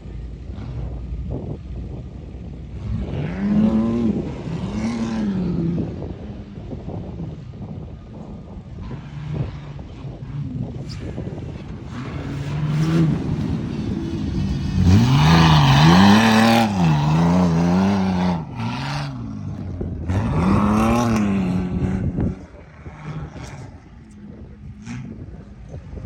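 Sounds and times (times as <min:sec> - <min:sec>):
truck engine revving: 0:08.8 - 0:26.0.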